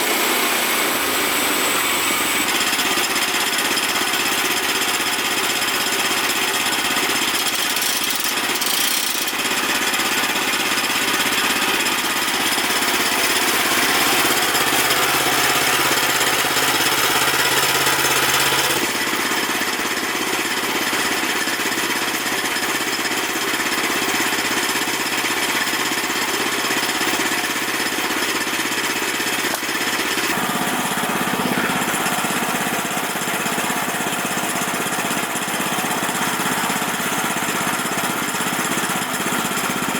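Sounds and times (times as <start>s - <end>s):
sawmill engine running under load: 0.0s - 39.9s
band blade cutting log: 6.8s - 9.5s, 12.4s - 18.9s.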